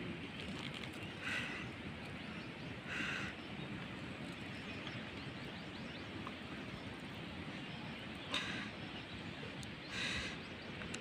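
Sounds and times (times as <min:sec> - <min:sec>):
outdoor background noise: 0:00.0 - 0:11.0
bird calling: 0:01.1 - 0:01.8, 0:02.8 - 0:03.4, 0:08.2 - 0:09.2, 0:09.8 - 0:11.0.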